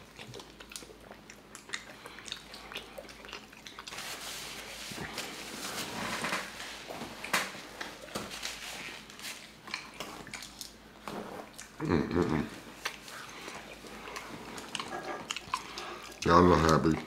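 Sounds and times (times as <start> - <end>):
wet chewing and lip smacking: 0.0 - 5.3, 9.0 - 17.0.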